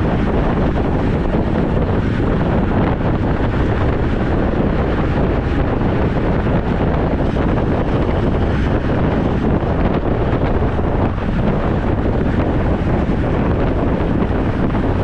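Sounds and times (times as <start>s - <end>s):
wind buffeting the microphone: 0.0s - 15.0s.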